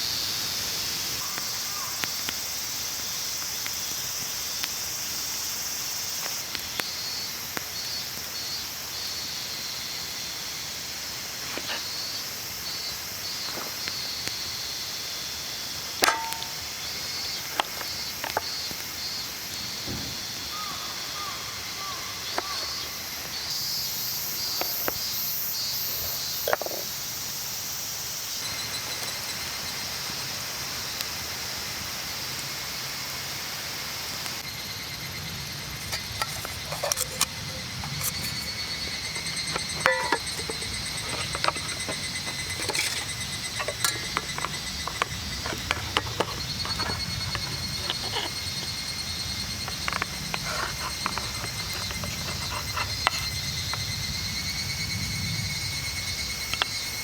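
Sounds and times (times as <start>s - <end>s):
insects trilling: 0.0s - 57.0s
clicks and knocks of handling: 16.0s - 18.5s, 35.8s - 53.8s.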